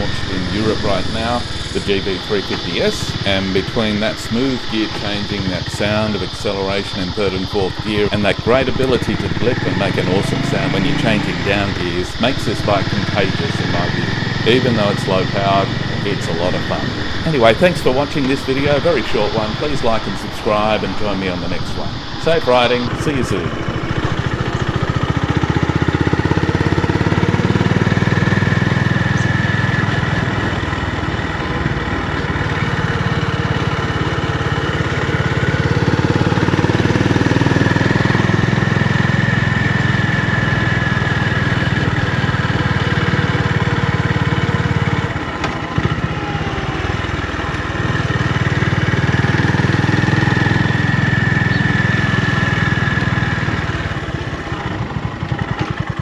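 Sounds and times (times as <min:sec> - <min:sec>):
motorcycle engine and exhaust running: 0:00.0 - 0:56.0.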